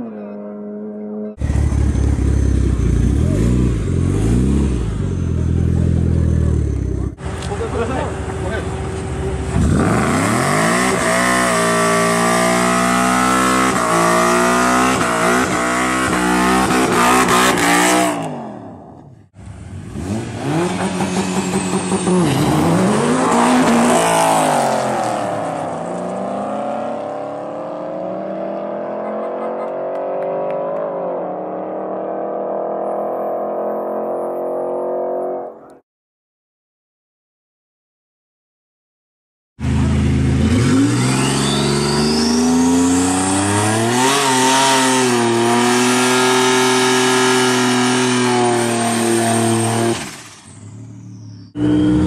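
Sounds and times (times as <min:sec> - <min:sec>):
race car engines accelerating: 0:00.0 - 0:35.8, 0:39.6 - 0:52.0.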